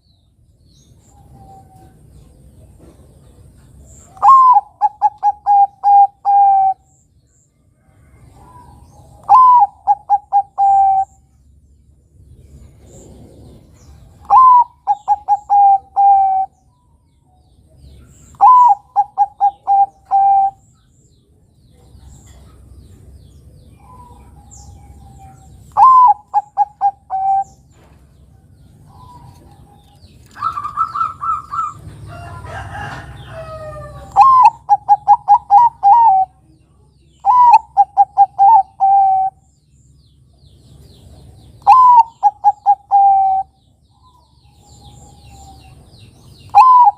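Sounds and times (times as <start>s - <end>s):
dove cooing: 4.1s - 6.9s, 8.2s - 11.2s, 12.8s - 16.6s, 18.3s - 20.6s, 23.8s - 27.6s, 28.8s - 36.4s, 37.2s - 39.4s, 41.6s - 43.6s, 46.5s - 46.9s.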